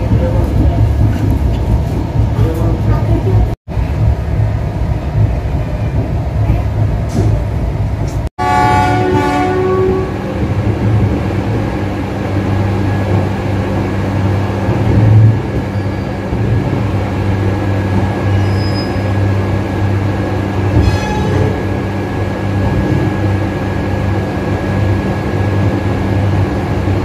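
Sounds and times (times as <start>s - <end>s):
train hum and rumble inside coach: 0.0s - 27.0s
locomotive horn: 8.4s - 10.4s, 20.7s - 21.6s.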